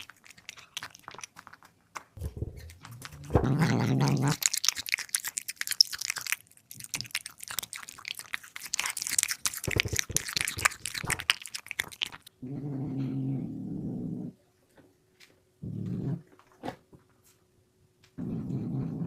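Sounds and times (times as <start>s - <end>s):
cat crunching food: 0.0s - 12.4s
cat growling: 2.2s - 4.5s, 9.3s - 11.3s, 12.4s - 14.4s, 18.2s - 19.0s.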